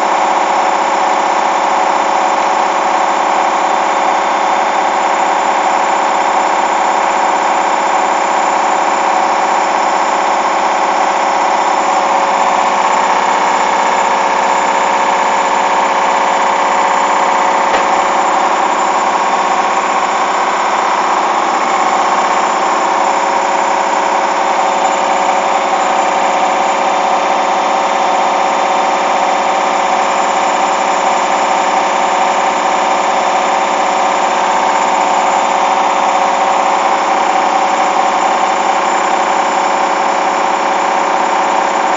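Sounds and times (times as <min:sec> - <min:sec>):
washing machine motor whine: 0:00.0 - 0:41.9
single click: 0:17.7 - 0:18.1.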